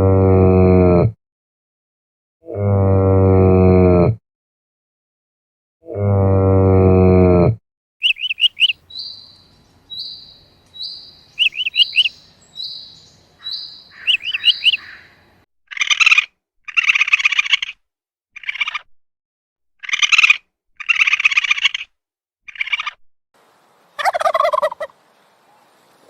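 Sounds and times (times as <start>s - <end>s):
high whistled bird note: 8.0s - 9.3s, 10.0s - 14.9s
harsh buzzing animal calls: 8.0s - 17.8s
rapid bird chirps: 8.0s - 17.8s, 18.4s - 18.8s, 19.8s - 21.9s, 22.5s - 23.0s.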